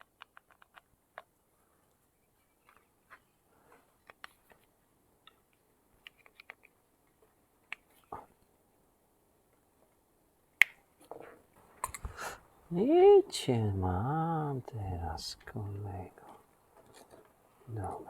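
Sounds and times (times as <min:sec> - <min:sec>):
plastic parts clicking and tapping: 0:00.0 - 0:01.4, 0:03.9 - 0:08.1.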